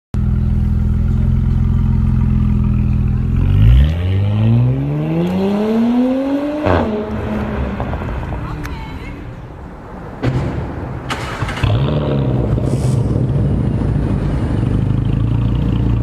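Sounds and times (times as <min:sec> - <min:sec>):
car engine accelerating: 0:00.2 - 0:08.5, 0:10.8 - 0:16.0
exhaust crack: 0:06.6 - 0:16.0.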